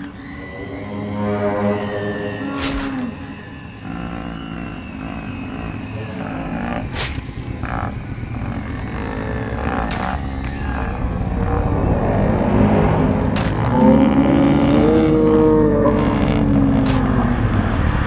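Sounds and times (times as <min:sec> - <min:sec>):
low rumble: 0:00.0 - 0:18.0
sharp cracks: 0:06.2 - 0:10.9, 0:13.3 - 0:14.0, 0:16.8 - 0:17.4.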